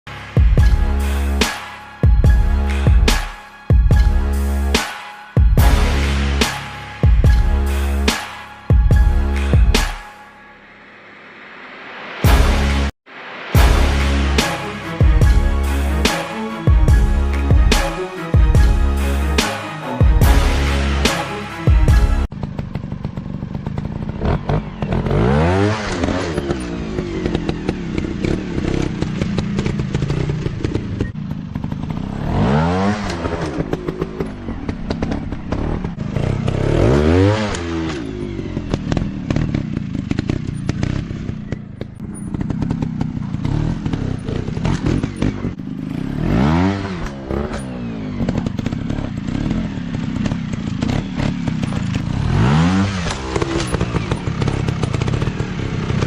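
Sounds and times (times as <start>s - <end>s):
dirt bike engine revving: 13.6s - 56.0s.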